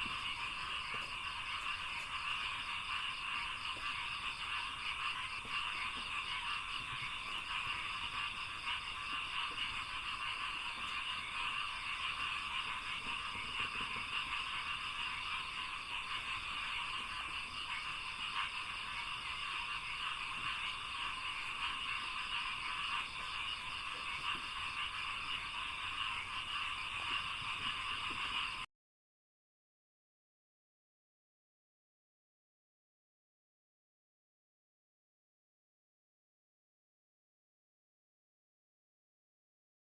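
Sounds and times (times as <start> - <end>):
frogs croaking in chorus: 0.0 - 28.7.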